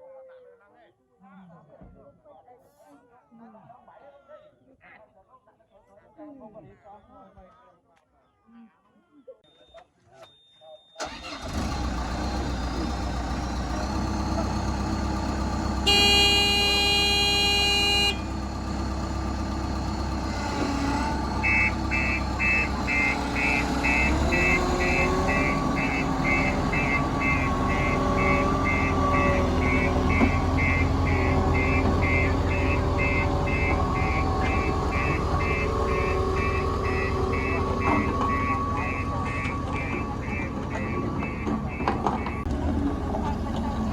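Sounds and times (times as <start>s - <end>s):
road roller diesel engine: 11.0s - 43.9s
horn sounding: 15.2s - 18.8s, 21.0s - 42.5s
reversing alarm beeping: 15.8s - 19.0s, 20.6s - 42.5s.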